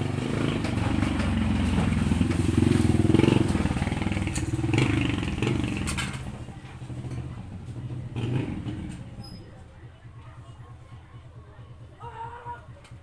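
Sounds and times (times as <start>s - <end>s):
engine running: 0.0s - 10.4s.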